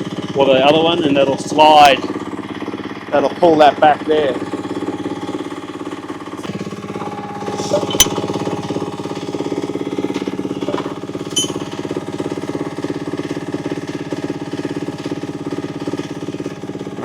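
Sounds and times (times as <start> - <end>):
excavator engine idling: 0.0 - 17.0
spanner clinking on metal: 7.6 - 8.2, 11.3 - 11.8.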